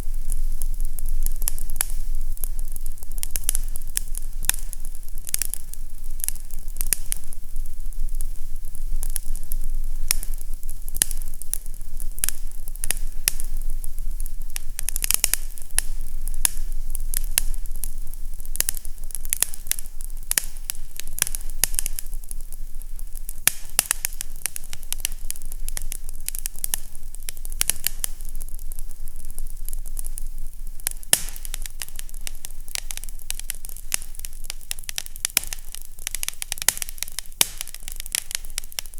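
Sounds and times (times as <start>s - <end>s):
fire crackling and popping: 0.0s - 38.9s
low steady rumble: 0.0s - 38.9s.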